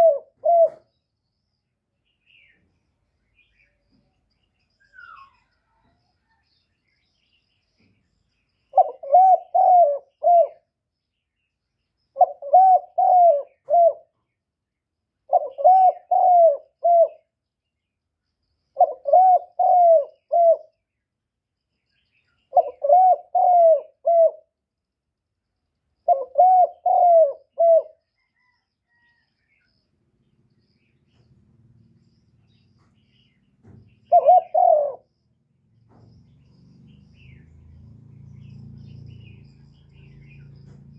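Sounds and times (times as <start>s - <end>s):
dove cooing: 0.0s - 0.9s, 8.7s - 10.7s, 12.2s - 14.1s, 15.3s - 17.3s, 18.8s - 20.7s, 22.5s - 24.5s, 26.0s - 29.1s, 34.0s - 35.1s.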